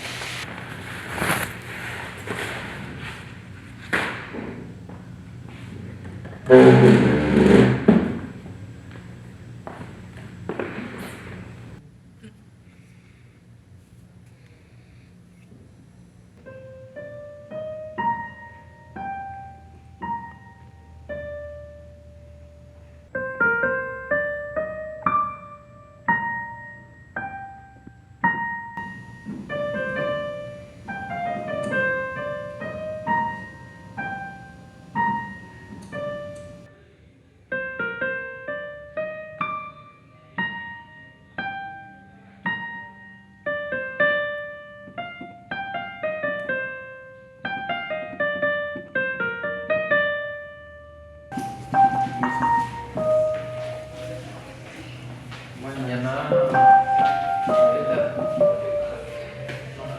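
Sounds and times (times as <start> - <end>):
slow piano melody: 0.0 - 11.8, 16.4 - 36.8, 37.5 - 59.9.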